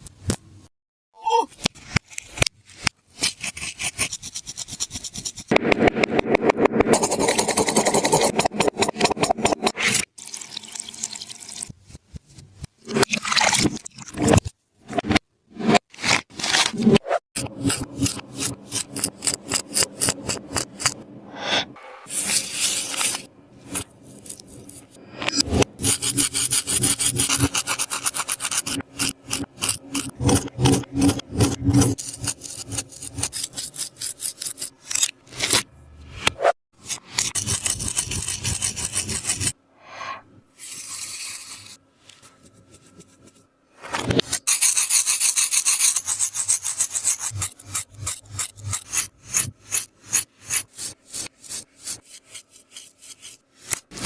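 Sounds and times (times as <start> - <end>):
rubbing and scratching squishy toy: 1.6 - 5.6, 22.1 - 25.0, 25.8 - 35.7, 36.8 - 39.6, 40.6 - 54.0.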